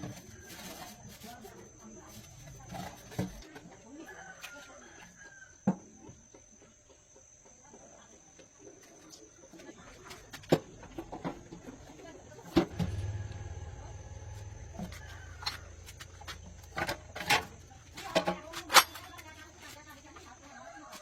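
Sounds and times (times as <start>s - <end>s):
low steady hum: 10.9s - 19.8s.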